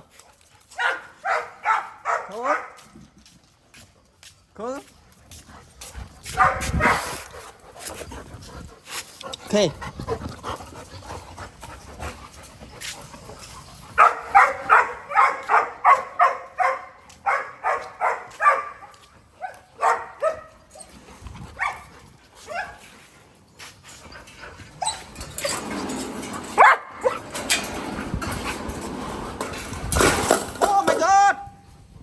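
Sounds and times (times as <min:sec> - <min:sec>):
dog barking: 0:00.8 - 0:02.8, 0:06.3 - 0:07.1, 0:14.0 - 0:20.6, 0:26.6 - 0:27.2.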